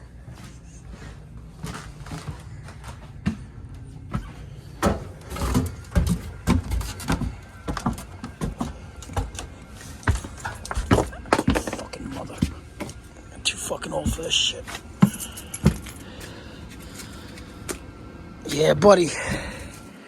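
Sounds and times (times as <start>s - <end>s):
air handler blower hum: 0.0s - 20.0s
handling knocks and rattles: 1.6s - 17.8s.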